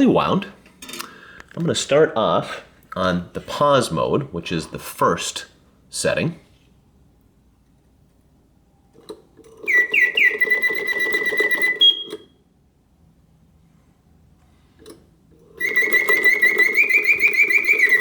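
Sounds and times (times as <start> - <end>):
mechanical bird whistle song: 9.6 - 12.4, 15.6 - 18.0.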